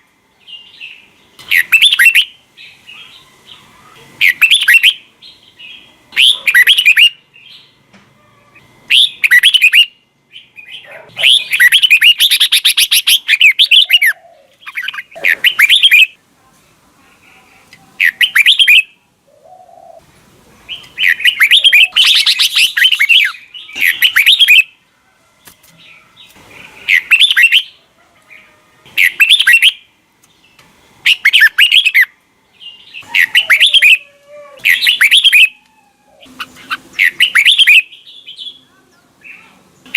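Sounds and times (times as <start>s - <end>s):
bird singing chattering phrases: 0.4s - 7.8s, 8.5s - 16.2s, 17.1s - 20.0s, 20.6s - 24.8s, 25.8s - 34.0s, 34.6s - 35.6s, 36.2s - 39.9s
faint low warbling calls: 0.4s - 16.2s, 17.2s - 24.8s, 31.0s - 39.9s.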